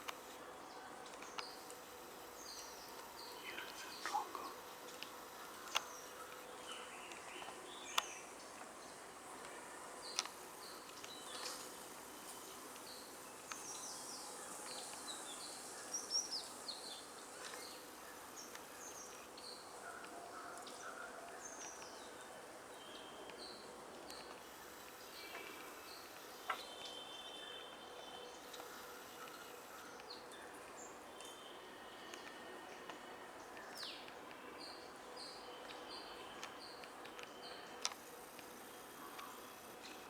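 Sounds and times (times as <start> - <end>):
faint background hum: 0.0 - 40.0
birds chirping: 1.2 - 8.5.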